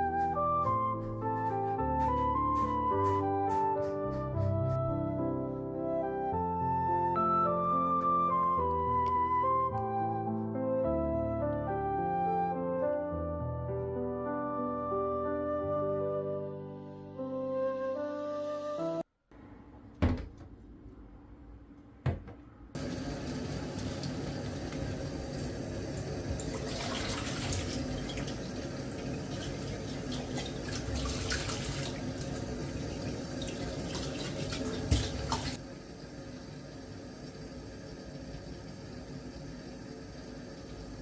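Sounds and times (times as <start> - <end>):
tap running into sink: 22.0 - 35.6.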